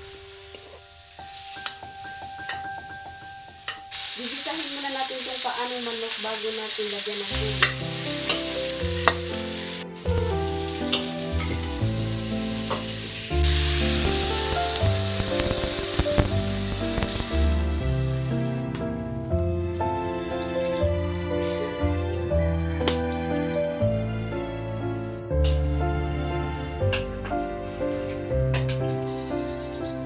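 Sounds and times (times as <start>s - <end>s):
food sizzling in hot oil: 0.0s - 18.6s, 28.9s - 30.0s
soft keyboard and bass music: 7.4s - 30.0s
liquid poured into wok: 7.6s - 18.4s
metal spatula scraping a wok: 28.9s - 30.0s.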